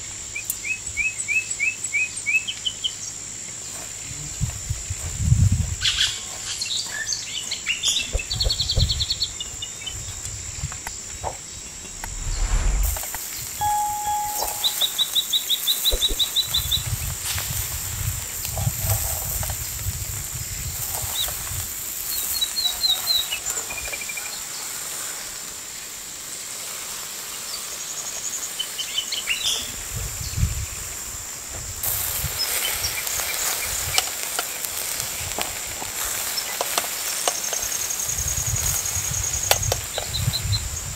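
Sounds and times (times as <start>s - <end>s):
low rumbles: 11.7s - 13.1s
steady high hum: 11.7s - 15.0s.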